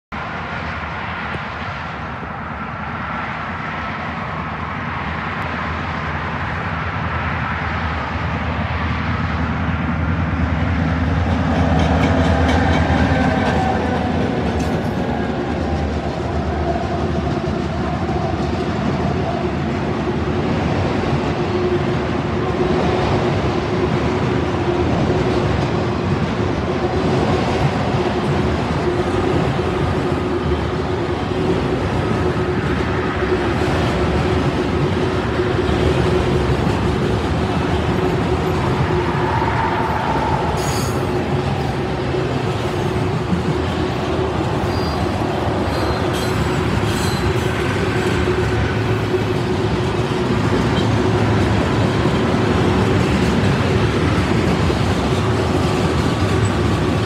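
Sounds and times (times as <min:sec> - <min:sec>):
locomotive engines rumbling: 0:00.2 - 0:57.0
train cars rolling and clattering: 0:06.3 - 0:57.0
wheels clicking over rail joints: 0:11.0 - 0:19.8, 0:40.0 - 0:57.0.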